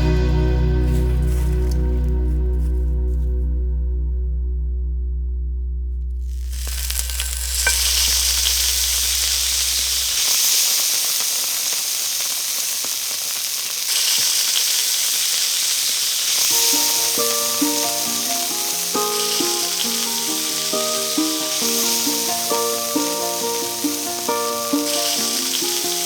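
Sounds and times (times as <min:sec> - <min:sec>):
food sizzling in a pan: 0:06.4 - 0:26.0.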